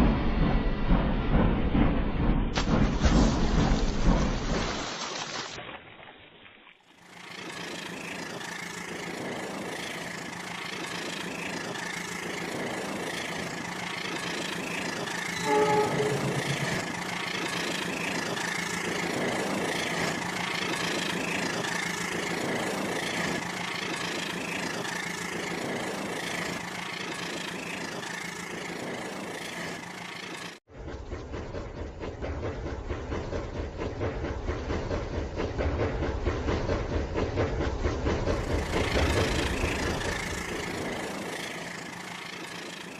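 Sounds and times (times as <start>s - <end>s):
toy train motor hum and clatter: 7.0s - 42.9s
toy train horn: 15.2s - 17.0s.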